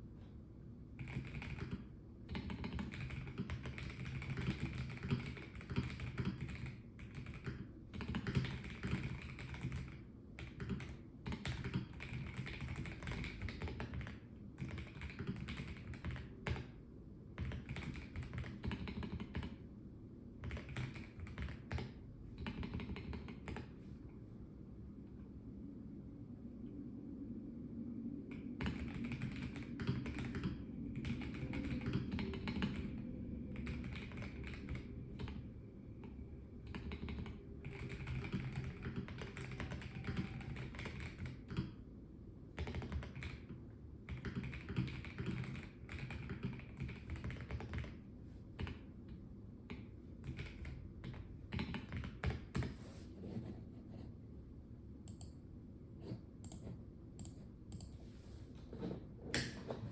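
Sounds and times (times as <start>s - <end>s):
mechanical keyboard typing: 1.0s - 16.7s, 17.4s - 19.6s, 20.4s - 23.7s, 28.3s - 35.4s, 36.6s - 41.7s, 42.6s - 48.0s, 49.7s - 52.8s.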